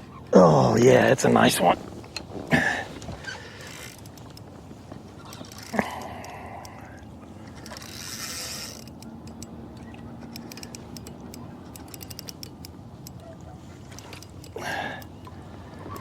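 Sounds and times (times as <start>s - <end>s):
fishing reel clicking: 3.6s - 4.4s, 5.3s - 9.5s, 10.2s - 13.3s.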